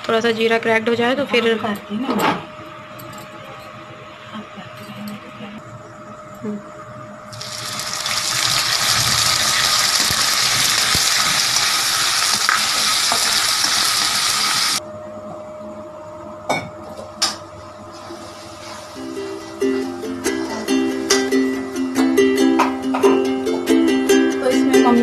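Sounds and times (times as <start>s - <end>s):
paste sizzling in hot oil: 7.3s - 14.8s.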